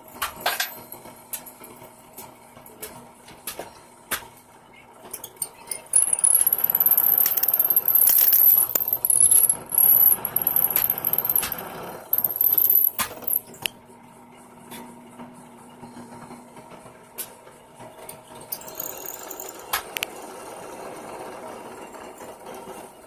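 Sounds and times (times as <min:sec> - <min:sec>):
small power tool grinding: 0:05.9 - 0:13.5, 0:18.6 - 0:19.6.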